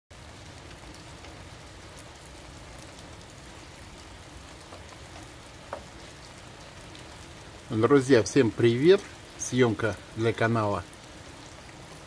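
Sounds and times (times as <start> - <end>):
heavy rain: 0.1 - 12.0
drops ticking: 4.4 - 7.3.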